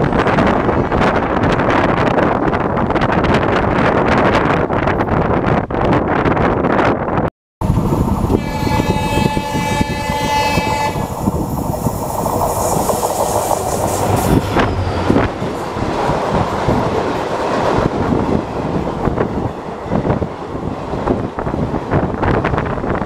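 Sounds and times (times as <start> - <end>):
moving train running noise: 0.0 - 23.0
train horn: 8.3 - 11.2.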